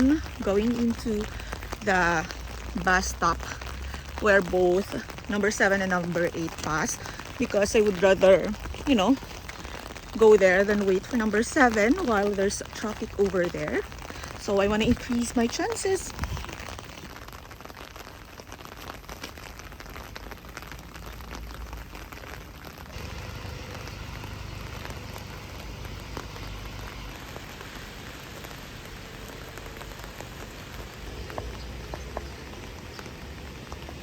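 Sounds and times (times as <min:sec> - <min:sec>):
rain falling: 0:00.0 - 0:34.0
low rumble: 0:22.9 - 0:34.0.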